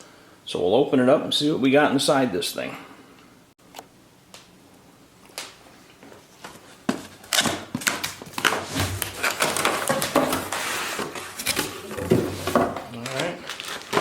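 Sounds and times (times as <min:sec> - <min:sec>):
packaging clicks and scrapes: 0:07.3 - 0:14.0.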